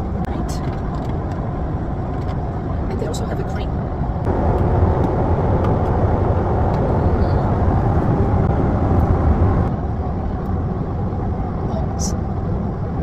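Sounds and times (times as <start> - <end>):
airliner cabin engine drone: 0.0 - 13.0.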